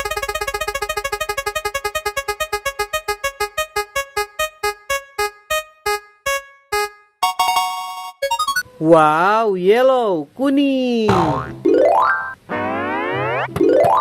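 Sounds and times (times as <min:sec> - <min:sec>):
repeating electronic keyboard tone: 0:00.0 - 0:08.7, 0:11.7 - 0:14.0.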